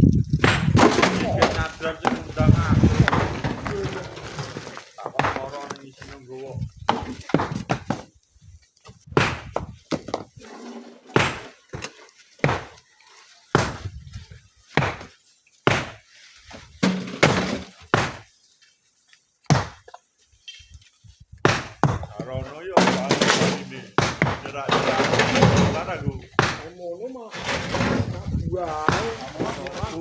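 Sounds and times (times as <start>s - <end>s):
rocks thudding and cracking: 0.0s - 5.8s.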